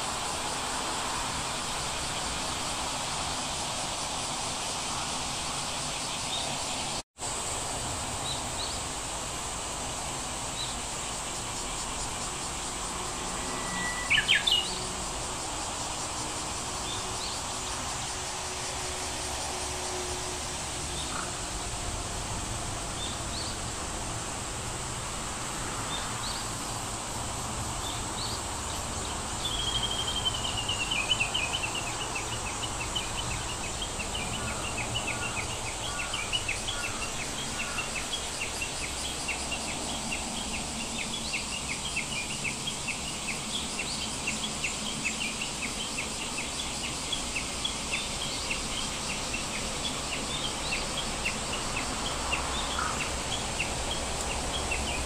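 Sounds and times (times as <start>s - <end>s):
high-pitched whine: 11.7s - 21.5s
birds chirping: 13.2s - 14.9s
descending bird trill: 13.3s - 14.8s.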